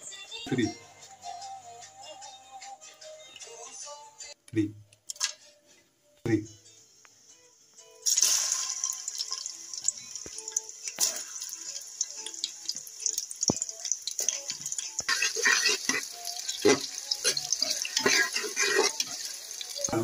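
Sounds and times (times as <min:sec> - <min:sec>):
onions sizzling in oil: 0:08.0 - 0:20.0
spatula scraping a pot: 0:15.0 - 0:19.3.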